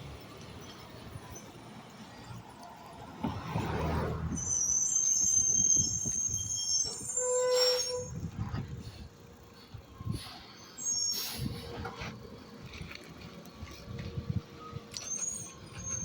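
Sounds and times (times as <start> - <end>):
truck engine rumble: 0.0 - 16.0
high-pitched metallic squeal: 4.3 - 9.0, 10.0 - 12.0, 14.6 - 16.0.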